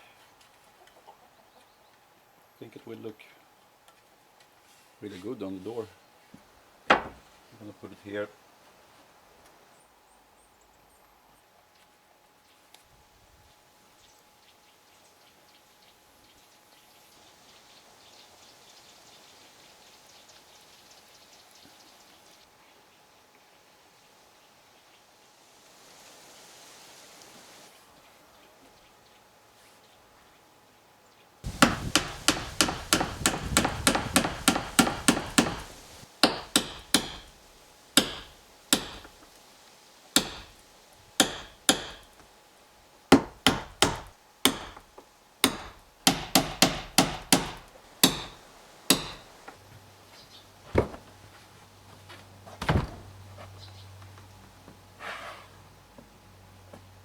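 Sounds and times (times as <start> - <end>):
hammer blows on wood: 31.5 - 37.4, 38.0 - 39.1, 40.2 - 40.6, 45.4 - 49.3.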